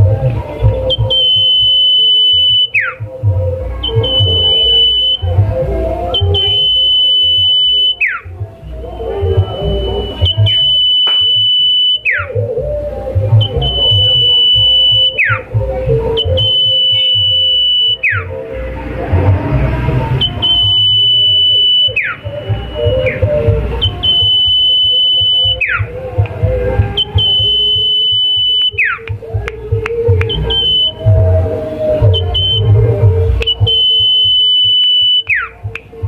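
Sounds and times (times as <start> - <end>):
bird whistle call with downward swoop: 0.9 - 3.1, 6.1 - 12.4, 13.4 - 15.5, 16.2 - 25.9, 27.0 - 29.1, 30.2 - 31.2, 32.1 - 35.6
low rumbling background: 18.2 - 21.5.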